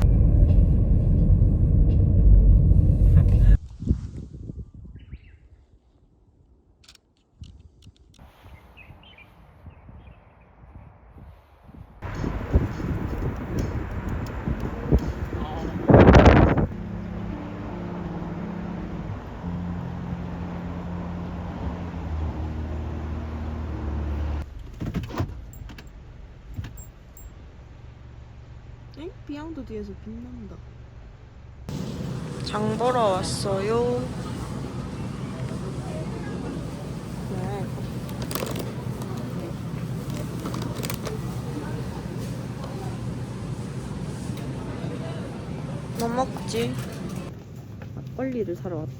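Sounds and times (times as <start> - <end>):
car engine hum: 0.0 - 3.6, 12.0 - 24.7, 31.7 - 47.4
road noise: 0.0 - 3.6, 12.0 - 48.9
loud low rumble: 0.0 - 4.6, 12.0 - 24.5, 31.7 - 47.4.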